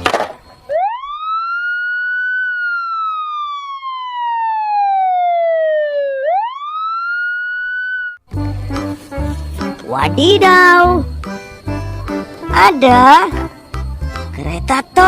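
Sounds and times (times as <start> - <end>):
police siren wailing: 0.4 - 8.3.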